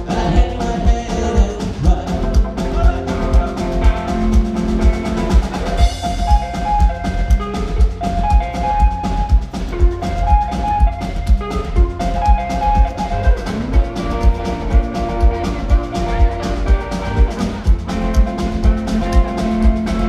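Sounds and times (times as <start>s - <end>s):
drum kit steady beat: 0.0s - 20.0s
rockabilly band playing live: 0.0s - 20.0s.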